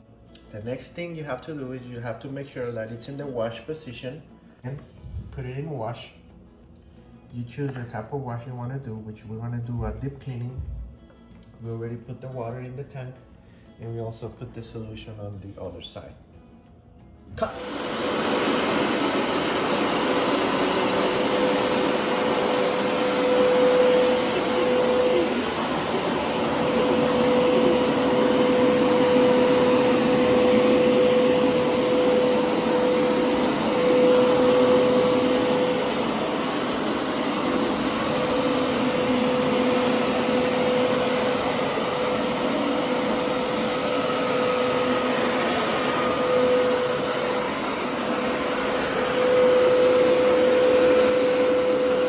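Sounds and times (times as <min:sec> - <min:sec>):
carpet washer motor droning: 0:17.3 - 0:52.0
high whistle: 0:20.1 - 0:52.0.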